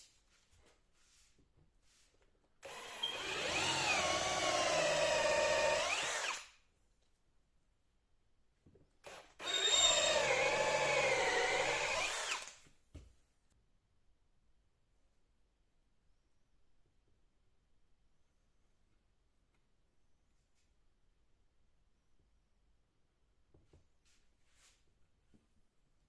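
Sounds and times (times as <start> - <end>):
power drill running: 2.6 - 6.5, 9.0 - 12.6.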